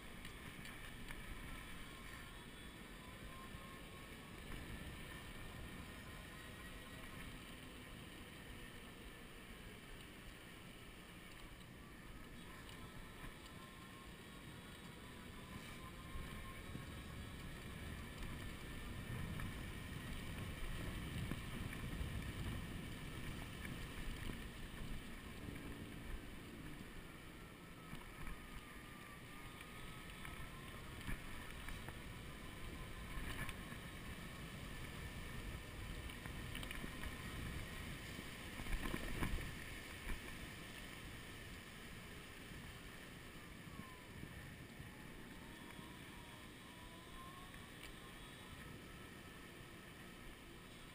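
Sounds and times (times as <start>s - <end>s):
electric motor whine: 0.0s - 50.9s
wind buffeting microphone: 15.8s - 27.0s.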